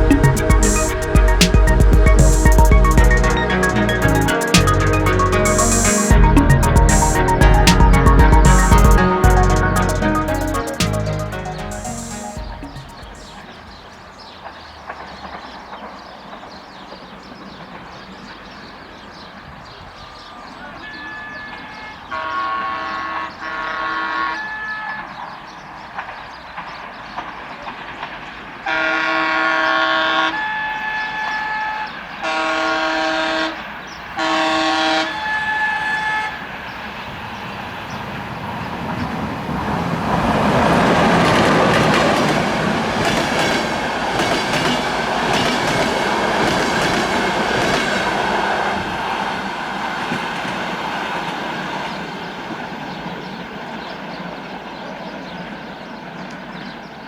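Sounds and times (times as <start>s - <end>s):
locomotive horn blasts: 20.9s - 25.1s, 28.7s - 33.6s, 34.2s - 36.4s.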